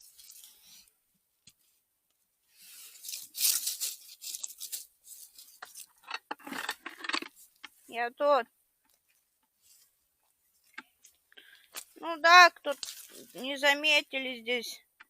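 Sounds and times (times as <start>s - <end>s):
undergrowth rustling and tearing: 2.8s - 6.0s, 12.6s - 13.5s.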